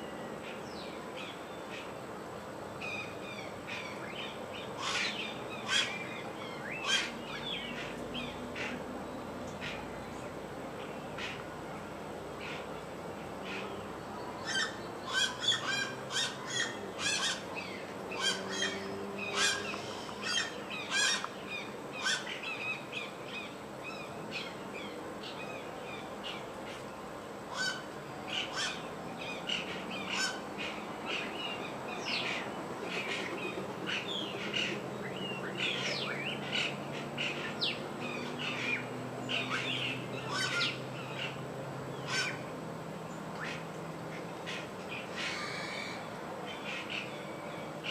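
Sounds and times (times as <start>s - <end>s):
wild birds chirping: 0.0s - 47.9s.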